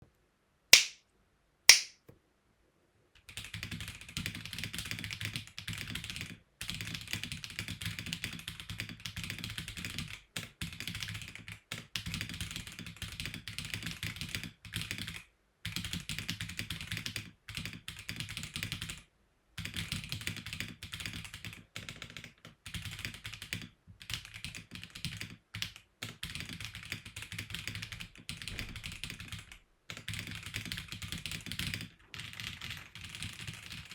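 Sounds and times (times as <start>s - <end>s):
sharp clicks: 0.8s - 1.0s, 1.7s - 1.9s
mechanical keyboard typing: 3.3s - 19.0s, 19.6s - 33.9s.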